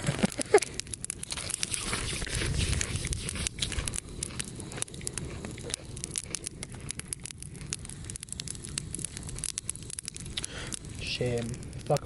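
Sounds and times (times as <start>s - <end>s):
bonfire crackling and popping: 0.0s - 12.0s.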